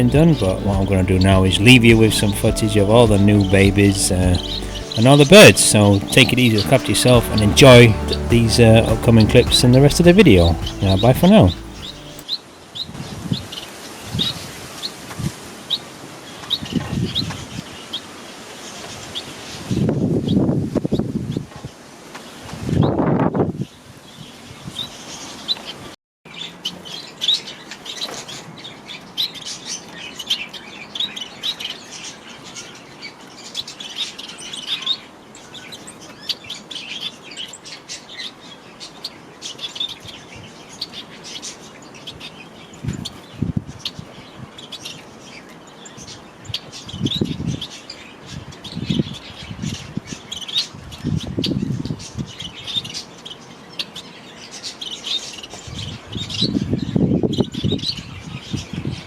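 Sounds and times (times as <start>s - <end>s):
short low thumps: 0.0s - 12.2s
birds chirping and twittering: 0.0s - 15.0s, 15.7s - 21.4s, 23.6s - 59.0s.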